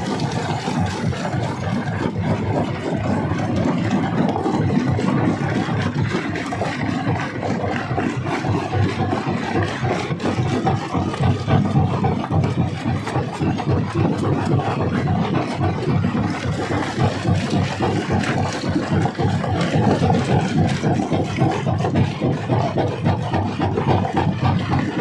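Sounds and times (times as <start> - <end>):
rock crusher rumbling: 0.0 - 25.0.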